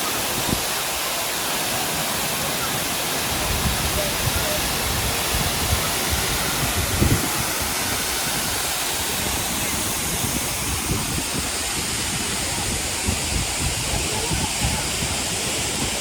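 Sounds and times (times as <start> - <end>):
waterfall rushing: 0.0 - 16.0
wind buffeting microphone: 3.3 - 16.0.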